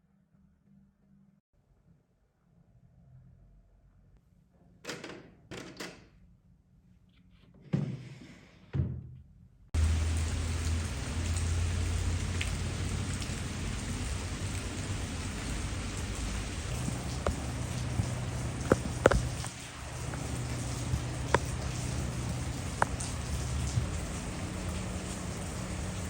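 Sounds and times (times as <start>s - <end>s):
steady rain: 9.8s - 26.0s.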